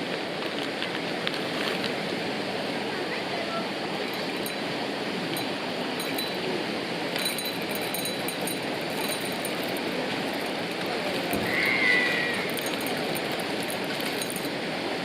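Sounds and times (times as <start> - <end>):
river water flowing: 0.0 - 15.0
faint light clinks: 4.0 - 14.6.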